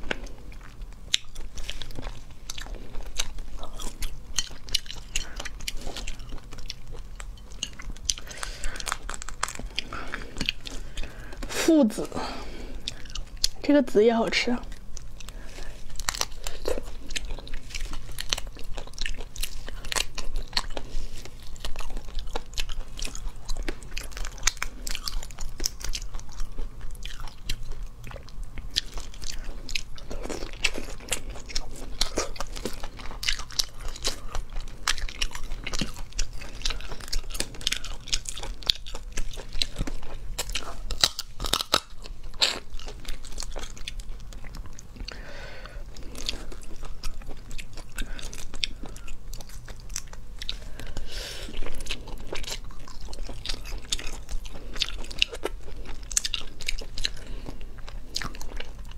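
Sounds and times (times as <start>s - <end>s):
chewing: 0.0s - 13.6s, 14.6s - 58.9s
shrimp shells crunching: 39.6s - 42.7s.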